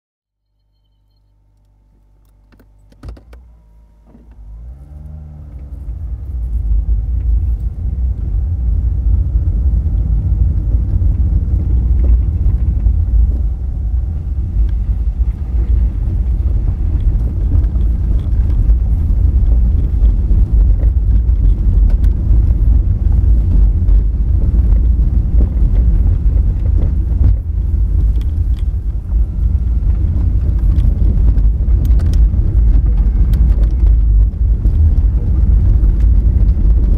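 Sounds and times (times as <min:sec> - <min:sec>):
car engine pulling away: 0:01.7 - 0:36.9
tyres rumbling on gravel: 0:04.4 - 0:36.9.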